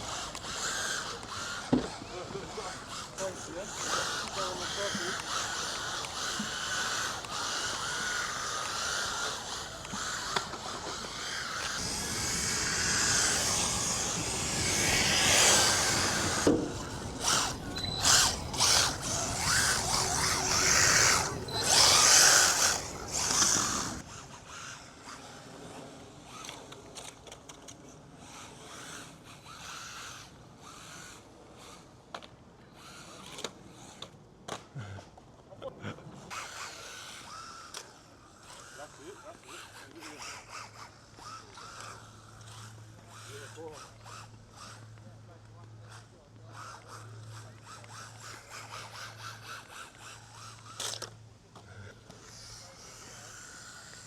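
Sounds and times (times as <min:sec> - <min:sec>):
electric rc car motor whining: 0:00.0 - 0:35.0, 0:36.1 - 0:54.0
faint ticks and clatter: 0:00.0 - 0:54.0.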